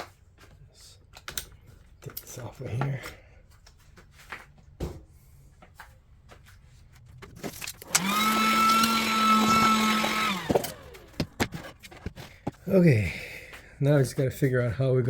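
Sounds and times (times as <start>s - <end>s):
tool handling clicks and knocks: 7.0s - 9.0s, 10.0s - 12.6s
electric drill whining: 7.8s - 11.9s.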